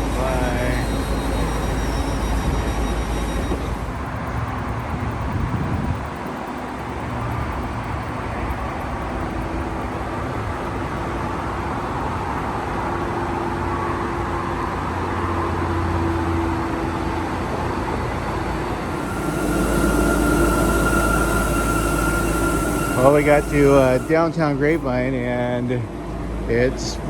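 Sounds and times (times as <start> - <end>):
diesel train rumbling: 0.0 - 4.9, 17.3 - 27.0
faint hum: 18.8 - 27.0.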